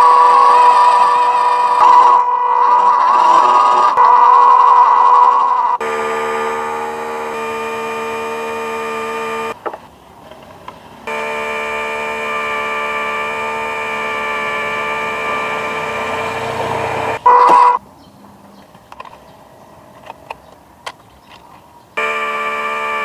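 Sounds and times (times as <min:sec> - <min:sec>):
electronic buzzing tone: 0:00.0 - 0:09.6, 0:11.1 - 0:17.8, 0:22.0 - 0:23.0
short high beep: 0:17.2 - 0:17.8.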